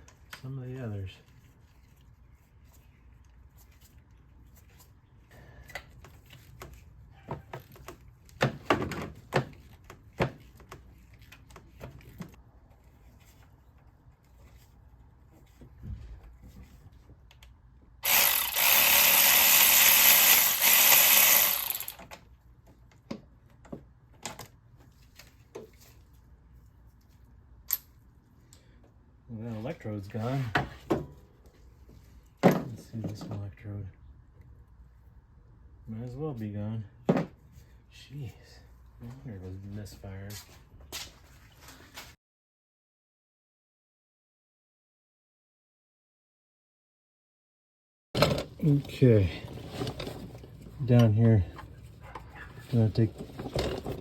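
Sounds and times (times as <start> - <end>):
power tool running: 18.0 - 22.1.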